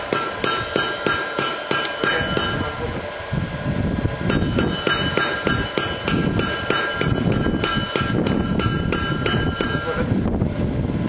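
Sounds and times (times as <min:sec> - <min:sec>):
hammer striking steel on anvil: 0:00.0 - 0:02.8, 0:04.3 - 0:10.1.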